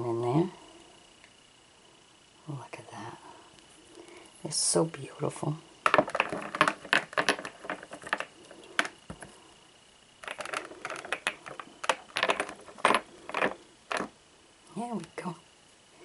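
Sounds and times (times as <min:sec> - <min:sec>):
packaging clicks and crackles: 0:10.2 - 0:14.1.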